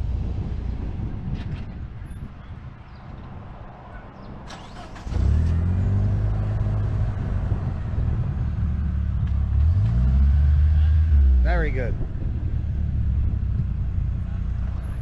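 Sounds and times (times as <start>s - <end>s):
car engine revving: 4.5s - 15.0s.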